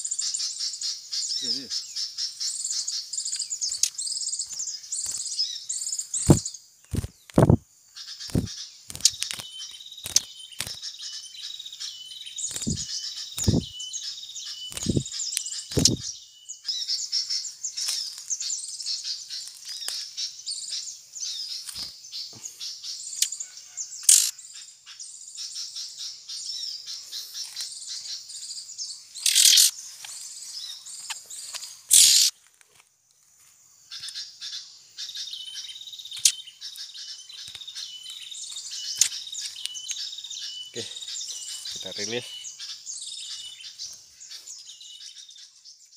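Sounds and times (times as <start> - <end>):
small birds chirping: 0.0 - 45.9
loud rustling bursts: 8.3 - 9.4, 12.5 - 13.7.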